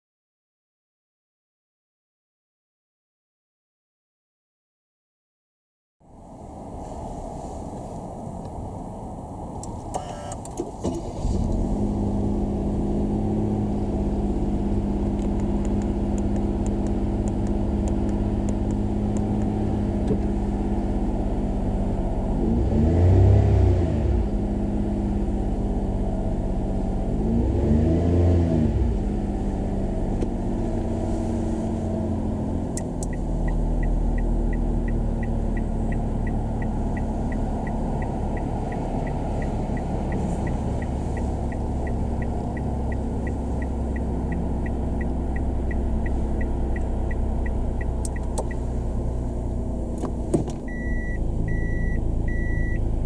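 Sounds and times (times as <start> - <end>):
car engine idling: 6.4 - 53.0
light regular ticking: 14.9 - 20.2, 32.6 - 52.0
reverse warning beeps: 50.7 - 52.9.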